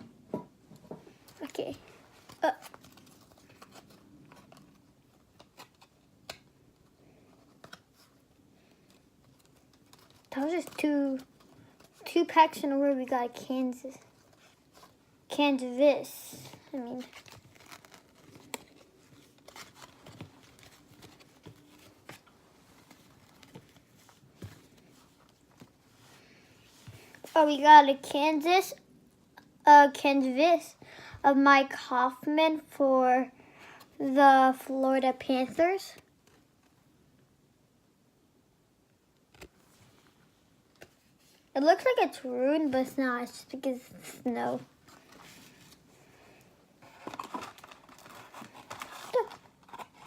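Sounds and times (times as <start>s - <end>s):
cards and wrappers rustling: 0.8s - 28.1s, 39.3s - 50.0s.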